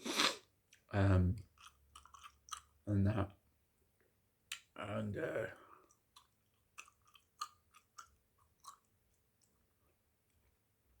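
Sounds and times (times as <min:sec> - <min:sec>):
gum chewing mouth sounds: 0:00.0 - 0:02.8, 0:05.8 - 0:09.6.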